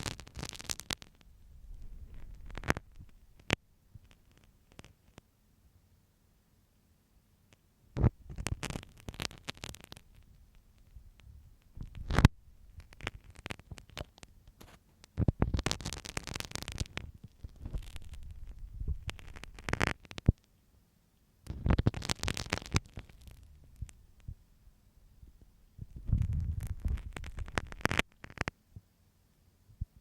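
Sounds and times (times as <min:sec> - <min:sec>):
pin scratching microphone: 0:00.0 - 0:05.2, 0:08.0 - 0:20.4, 0:21.5 - 0:24.4, 0:25.8 - 0:28.5.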